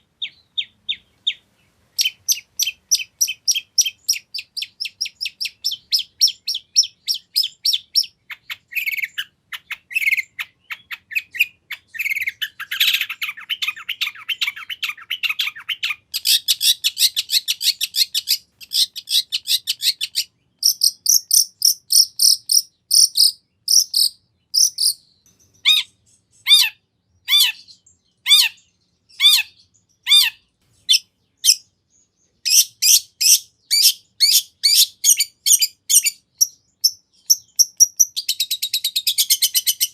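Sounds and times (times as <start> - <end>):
bird singing fast varied song: 0.0 - 39.9.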